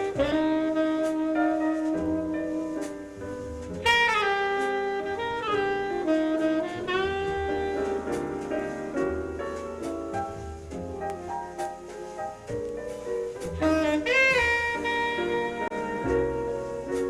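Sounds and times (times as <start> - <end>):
horn holding bending notes: 0.0 - 2.8, 3.8 - 9.0, 13.6 - 17.0
jazz record on loudspeakers: 0.0 - 17.0.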